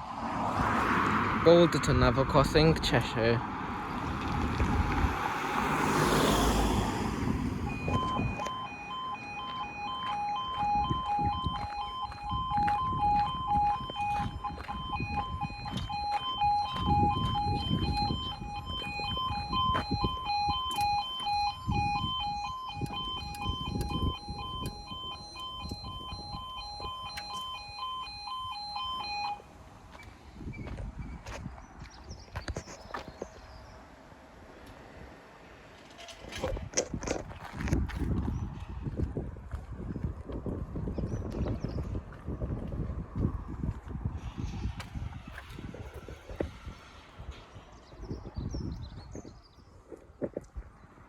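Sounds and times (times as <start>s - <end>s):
low rumbles: 1.4s - 5.8s, 6.4s - 32.6s
level crossing alarm: 6.0s - 30.1s.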